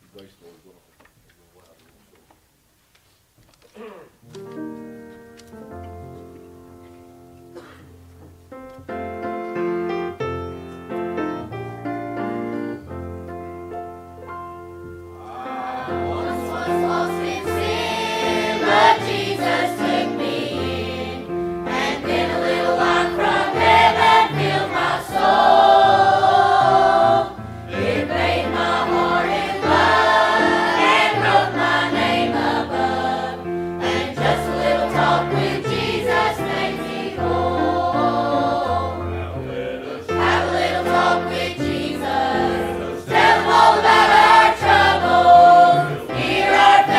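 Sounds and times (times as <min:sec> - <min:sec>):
keyboard accompaniment: 0:04.2 - 0:46.9
choir singing a hymn: 0:15.2 - 0:46.9.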